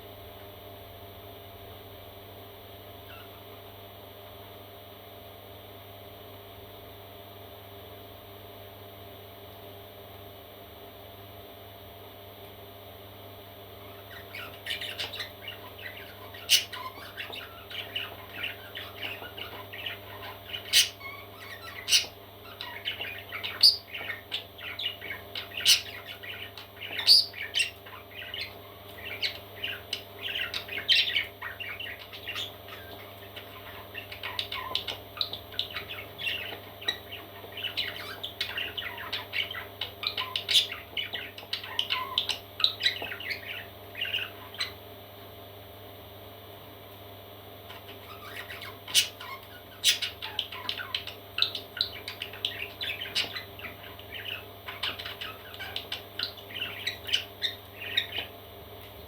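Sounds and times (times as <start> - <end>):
faint steady hum: 0.0 - 59.0
parrot chicks squawking: 3.0 - 3.4, 13.8 - 44.9, 47.6 - 58.4.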